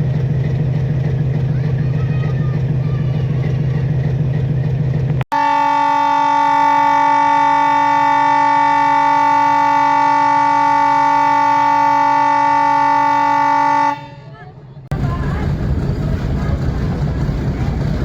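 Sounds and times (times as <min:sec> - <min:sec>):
low engine rumble: 0:00.0 - 0:05.8, 0:14.0 - 0:18.0
locomotive air horn blast: 0:05.3 - 0:14.4.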